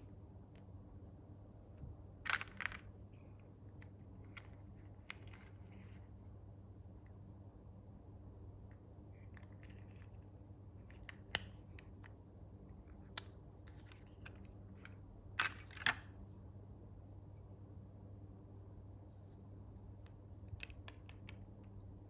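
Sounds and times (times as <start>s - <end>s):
faint low hum: 0.0s - 22.0s
toy packaging clicks and rustles: 2.3s - 2.9s, 13.7s - 16.1s.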